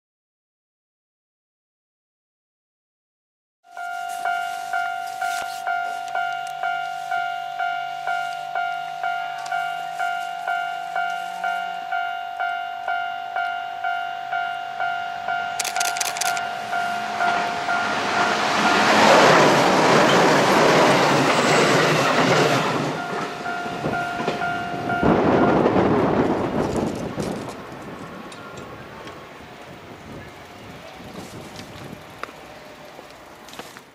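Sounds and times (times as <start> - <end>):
level-crossing bell dinging: 3.7 - 19.3, 20.0 - 25.7
train rushing past: 4.2 - 33.7.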